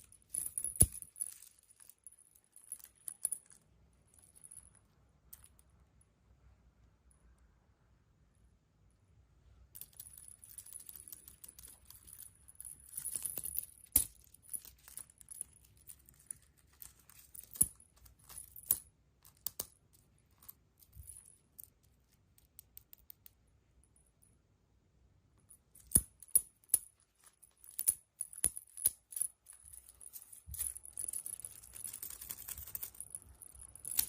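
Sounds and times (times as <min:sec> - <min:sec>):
crinkly rustle: 0:29.7 - 0:33.2.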